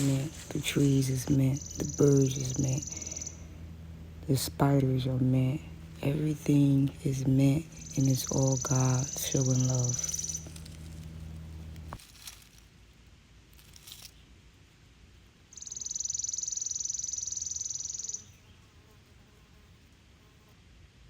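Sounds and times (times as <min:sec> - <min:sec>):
insect buzzing trill: 0:00.0 - 0:04.9, 0:05.5 - 0:11.6, 0:15.5 - 0:20.5.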